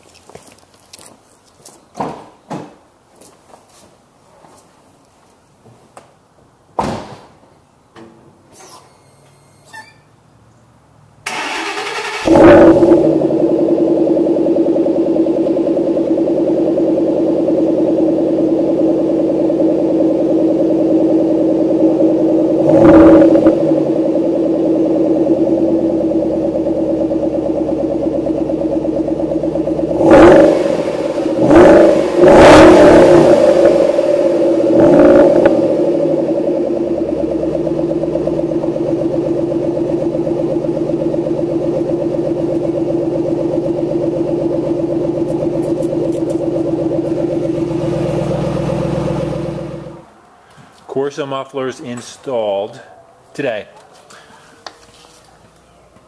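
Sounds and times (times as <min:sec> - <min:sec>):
car engine idling and revving: 0:11.2 - 0:50.1.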